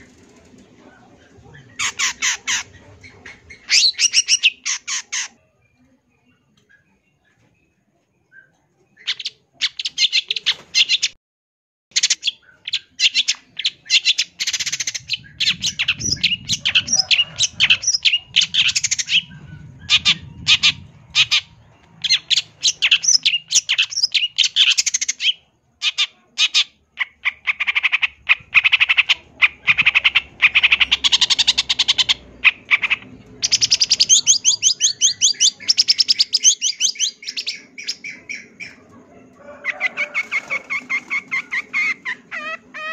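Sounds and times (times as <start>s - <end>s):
shrike singing chattering song: 11.9s - 38.9s.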